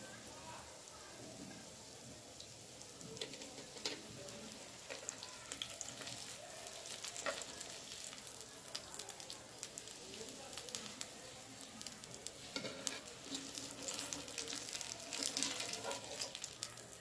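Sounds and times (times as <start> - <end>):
food frying in hot oil: 0.0 - 17.0
metal spoon scraping a pan: 3.2 - 4.1, 12.4 - 16.5.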